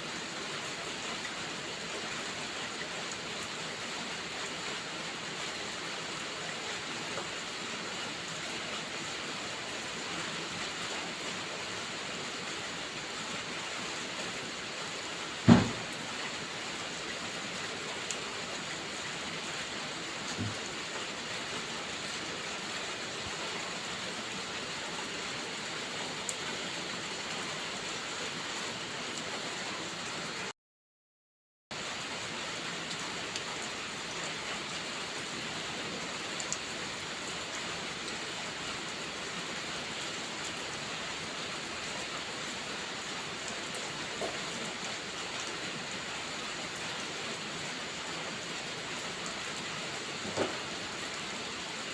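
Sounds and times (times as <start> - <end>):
heavy rain hiss: 0.0 - 30.3.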